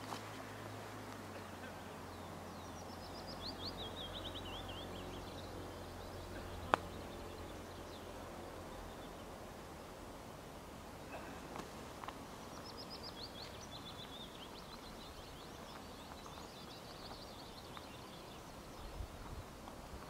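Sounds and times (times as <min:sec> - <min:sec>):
songbird twittering trills: 0:01.6 - 0:10.0, 0:12.3 - 0:20.0.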